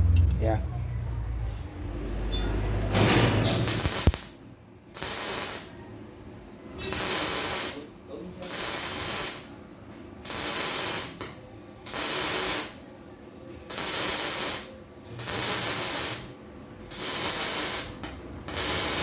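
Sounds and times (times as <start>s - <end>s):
welding crackling hiss: 3.6s - 4.4s, 5.0s - 5.8s, 6.8s - 9.6s, 10.2s - 12.8s, 13.7s - 16.3s, 16.9s - 19.0s.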